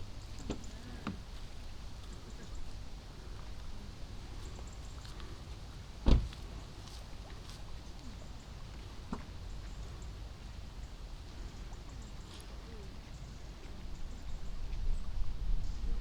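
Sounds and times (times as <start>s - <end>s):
loud sharp thump: 6.0s - 6.3s.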